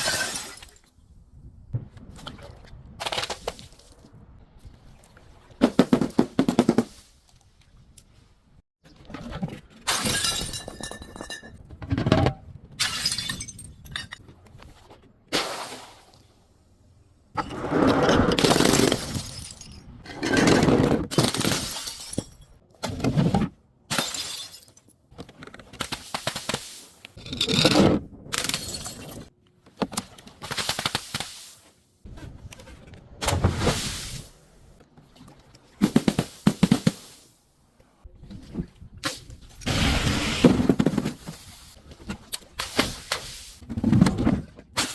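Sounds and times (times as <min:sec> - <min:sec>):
glass bottles shattering: 0:00.0 - 0:00.8, 0:09.9 - 0:11.6, 0:12.8 - 0:14.2, 0:18.4 - 0:20.4, 0:21.1 - 0:22.6, 0:23.9 - 0:24.9, 0:28.4 - 0:29.3.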